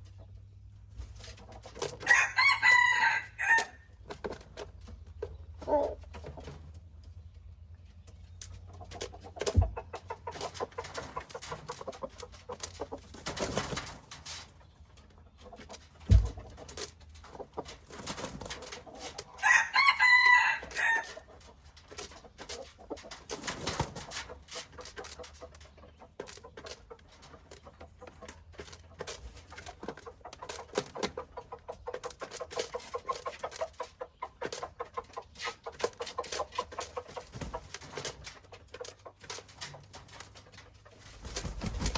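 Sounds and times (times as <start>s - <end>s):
chickens clucking: 0.0s - 41.9s
rooster crowing: 2.0s - 3.8s, 19.4s - 21.2s.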